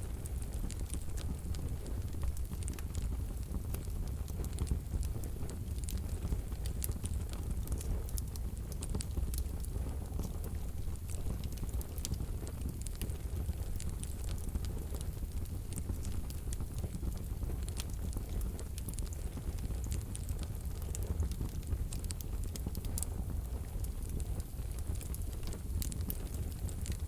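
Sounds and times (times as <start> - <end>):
fire crackling and popping: 0.0 - 27.0
low rumble of flames: 0.0 - 27.0.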